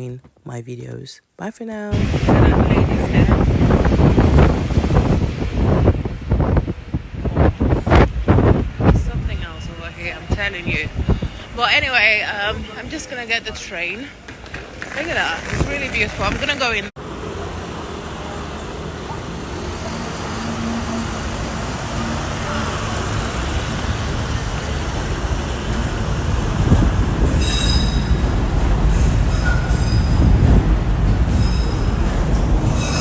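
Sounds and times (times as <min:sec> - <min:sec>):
train rumbling: 0:15.4 - 0:33.0
metallic wheel squeals: 0:27.4 - 0:28.2, 0:31.3 - 0:33.0.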